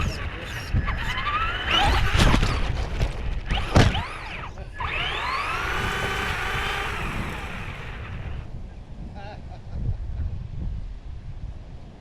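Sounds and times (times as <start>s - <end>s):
toy car motor whining: 0.0s - 8.5s
loud thump: 2.1s - 4.2s.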